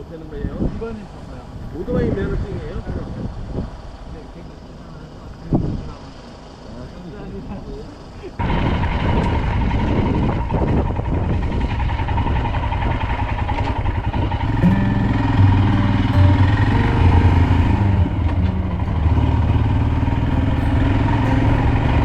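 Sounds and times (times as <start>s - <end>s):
wind rushing on microphone: 0.0s - 6.3s, 6.9s - 14.6s
motorcycle engine running: 8.4s - 22.0s
held low notes stepping in pitch: 14.4s - 22.0s.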